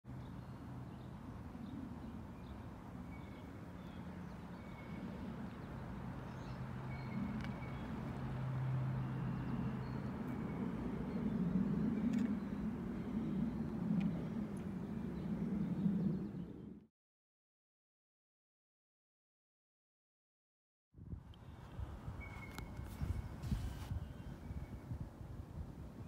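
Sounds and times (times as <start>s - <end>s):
vehicle engine humming: 4.0s - 15.9s
faint bird chirps: 22.2s - 24.9s.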